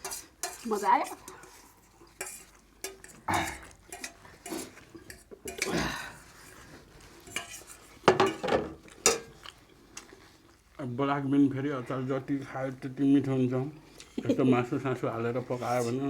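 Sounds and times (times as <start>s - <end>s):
cutlery clinking on plates: 0.0s - 5.8s, 7.2s - 9.6s.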